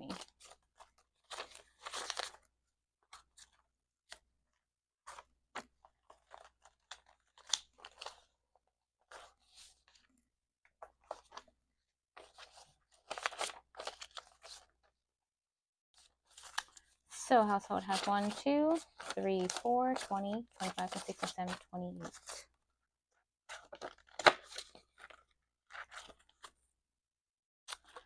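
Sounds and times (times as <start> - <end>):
banknotes rustling: 12.2 - 14.8, 16.0 - 22.4.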